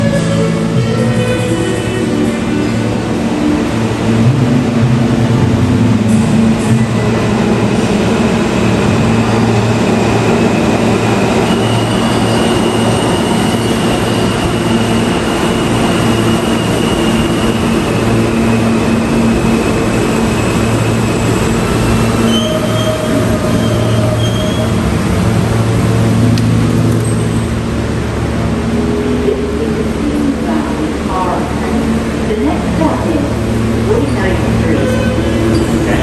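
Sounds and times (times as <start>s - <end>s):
subway train rumbling: 0.0s - 36.0s
high wheel squeals: 9.3s - 27.6s, 33.7s - 36.0s.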